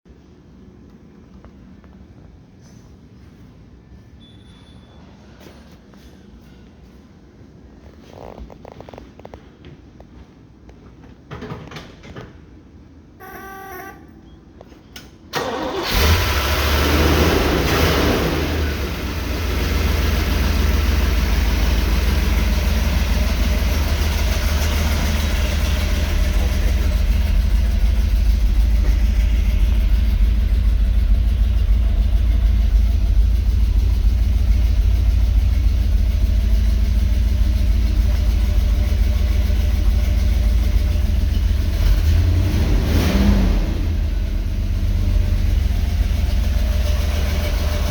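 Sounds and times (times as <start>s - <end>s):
car engine starting and idling: 14.9s - 47.9s.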